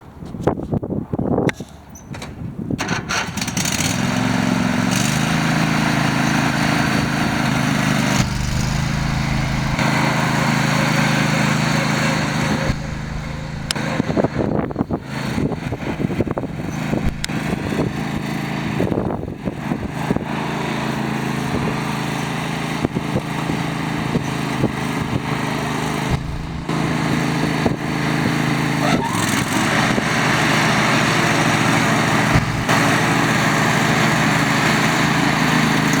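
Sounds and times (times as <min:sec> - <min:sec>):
riding lawn mower engine: 0:02.8 - 0:36.0
clicks and knocks: 0:17.0 - 0:17.3.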